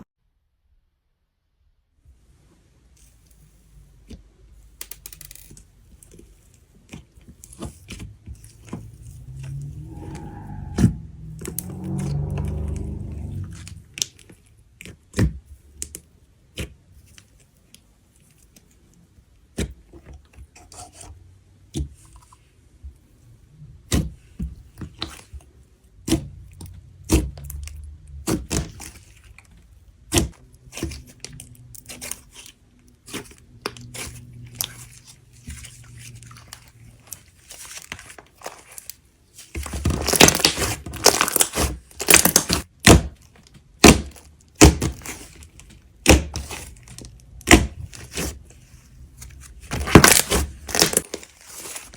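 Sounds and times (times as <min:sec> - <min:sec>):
clay slime popping and crackling: 0:39.6 - 0:48.4, 0:49.6 - 0:51.9.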